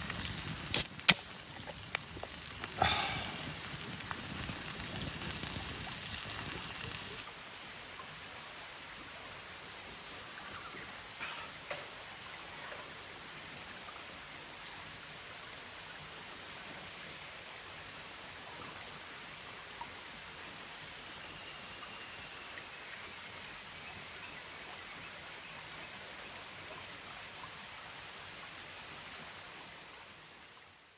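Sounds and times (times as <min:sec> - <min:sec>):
mountain stream rushing: 0:00.0 - 0:11.1.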